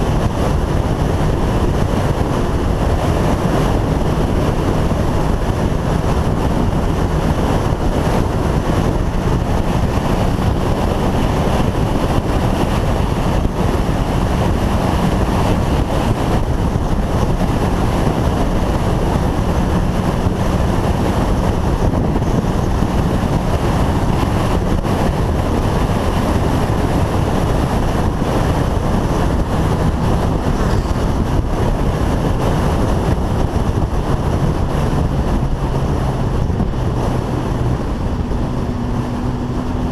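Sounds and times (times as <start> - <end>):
motorcycle engine humming: 0.0 - 39.9
wind rushing over microphone: 0.0 - 39.9.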